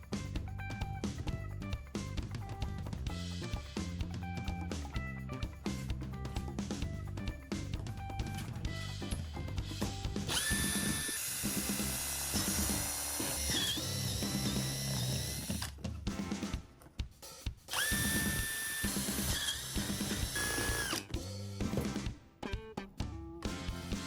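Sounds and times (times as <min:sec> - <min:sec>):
background music: 0:00.0 - 0:24.0
power drill whine: 0:10.3 - 0:15.8, 0:17.7 - 0:21.1.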